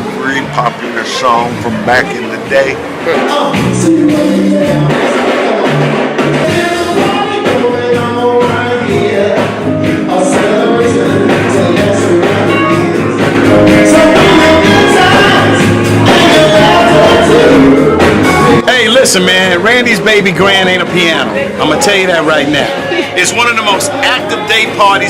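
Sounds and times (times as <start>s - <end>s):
live band playing: 0.0s - 25.0s
steady bass line: 0.0s - 25.0s
person singing: 0.5s - 18.7s.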